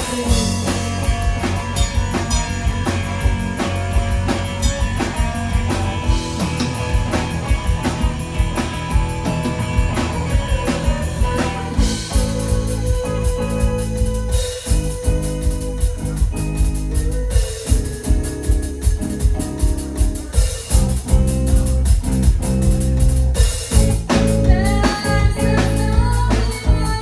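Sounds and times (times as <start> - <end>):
bass guitar: 0.0 - 27.0
drum kit beat: 0.0 - 27.0
electric guitar: 0.0 - 27.0.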